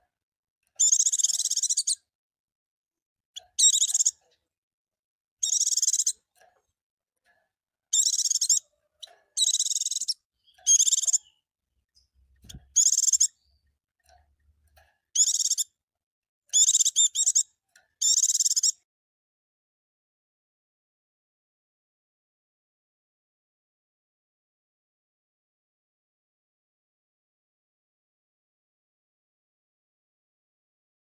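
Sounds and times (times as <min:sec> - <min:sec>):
bird twittering: 0:00.8 - 0:02.0, 0:03.4 - 0:04.2, 0:05.4 - 0:06.2, 0:07.9 - 0:11.4, 0:12.0 - 0:13.7, 0:15.2 - 0:15.7, 0:16.5 - 0:18.8.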